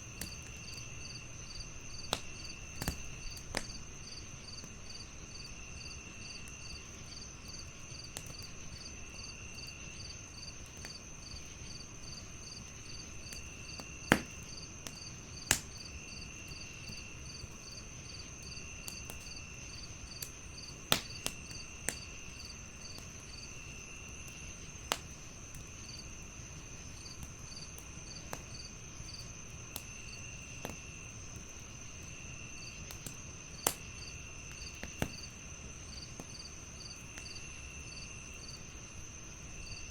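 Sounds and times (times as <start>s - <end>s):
wood fire crackling and popping: 0.0s - 37.5s
crickets chirping: 0.0s - 39.9s
high insect trill: 33.5s - 39.9s.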